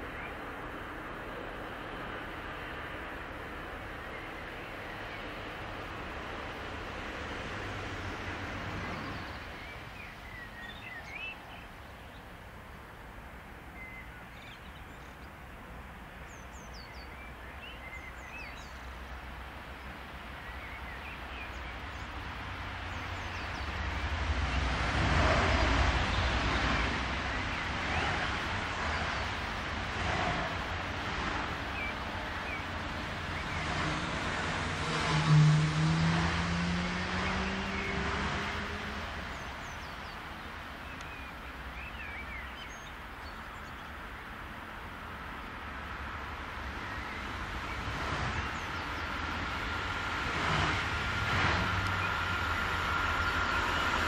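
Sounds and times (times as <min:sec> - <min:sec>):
freight train wagons rumbling: 0:45.7 - 0:54.0
electric locomotive whine: 0:46.2 - 0:54.0.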